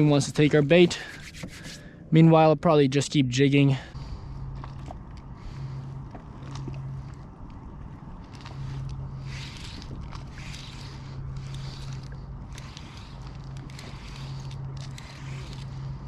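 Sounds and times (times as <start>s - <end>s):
low steady hum: 0.0s - 16.0s
water lapping against hull: 4.0s - 16.0s.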